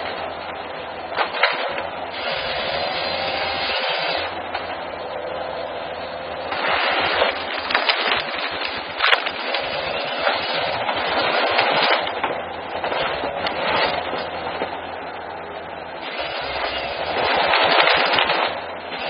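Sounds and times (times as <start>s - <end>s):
forestry machine sawing timber: 0.0s - 19.0s
wood splintering cracks: 6.4s - 14.8s, 16.0s - 19.0s.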